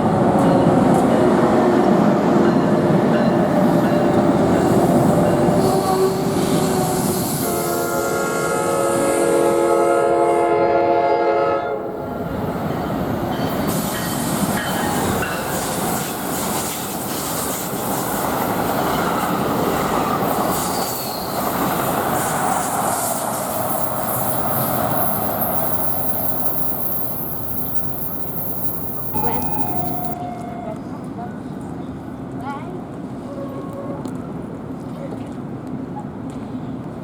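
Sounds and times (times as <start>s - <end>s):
train rumbling past: 0.0s - 34.8s
train horn chord: 5.4s - 12.2s, 29.1s - 30.2s.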